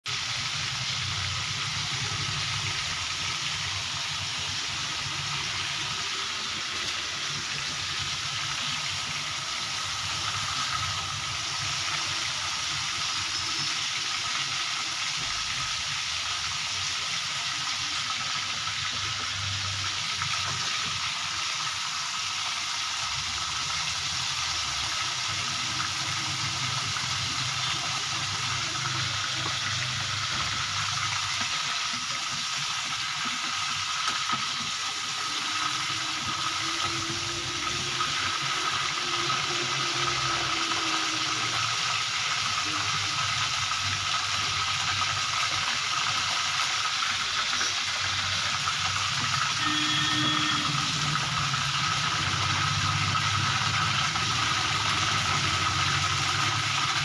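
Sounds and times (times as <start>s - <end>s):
chicken sizzling in hot oil: 0.0s - 57.0s
metal spoon turning food in pan: 23.6s - 57.0s.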